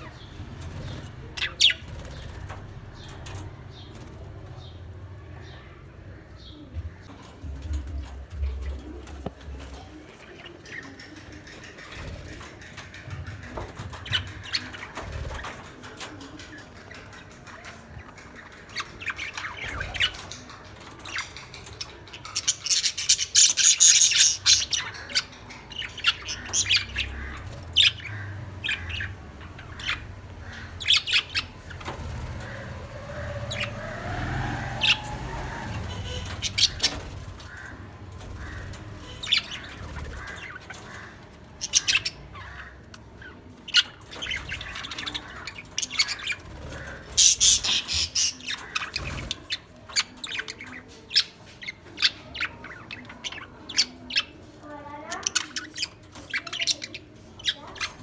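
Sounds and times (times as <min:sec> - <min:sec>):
lovebirds chirping and squawking: 0:00.0 - 0:58.0.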